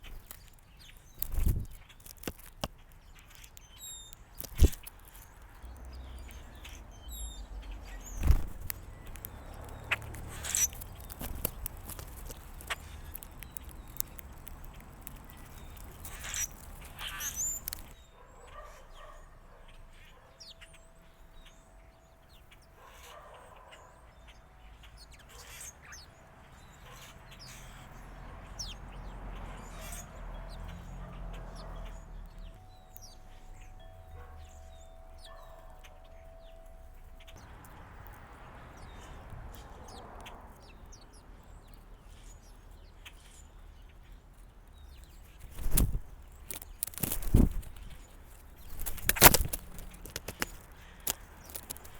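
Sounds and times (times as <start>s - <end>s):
bird chirps and calls: 0.0s - 37.5s, 38.7s - 51.9s
sharp clicks and knocks: 48.6s - 51.9s.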